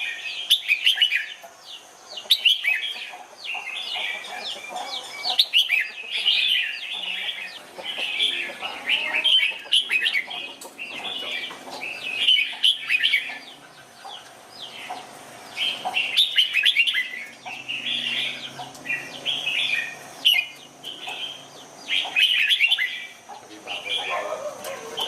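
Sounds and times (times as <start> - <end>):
bird singing chirpy phrases: 0.0 - 25.0.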